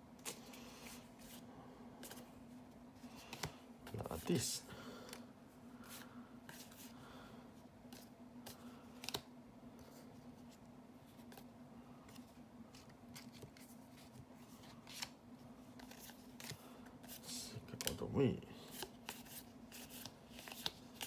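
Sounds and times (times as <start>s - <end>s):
cards clicking and sliding: 3.1s - 4.1s, 7.9s - 10.0s, 11.2s - 18.1s, 18.7s - 21.0s.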